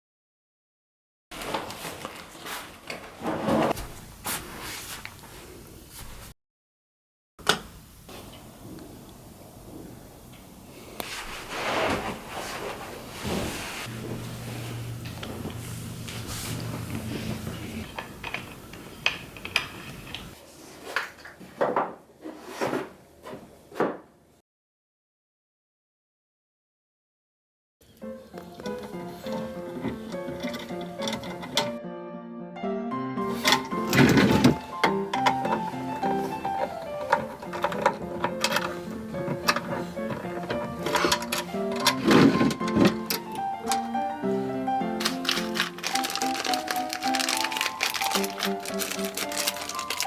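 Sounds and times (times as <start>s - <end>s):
handling knocks and scrapes: 1.4s - 6.3s, 11.0s - 14.3s
drawer sliding knocks and scrapes: 3.0s - 4.0s, 11.1s - 13.9s, 33.3s - 34.6s, 37.6s - 43.1s.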